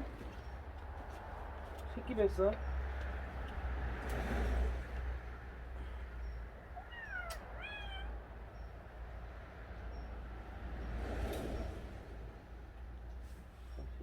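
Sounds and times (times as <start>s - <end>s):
cat meowing: 6.8s - 8.2s.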